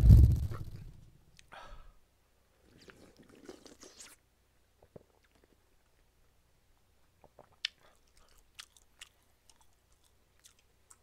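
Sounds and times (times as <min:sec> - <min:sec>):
person chewing: 0:02.7 - 0:04.2, 0:07.2 - 0:11.0
wet mouth clicks: 0:02.7 - 0:04.2, 0:07.2 - 0:11.0.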